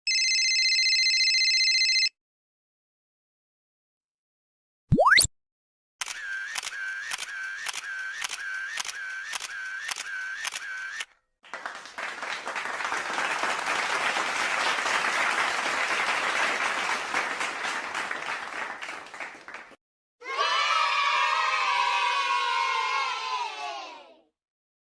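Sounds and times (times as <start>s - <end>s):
camera shutter clicks: 6.0s - 11.1s
applause: 11.4s - 19.8s.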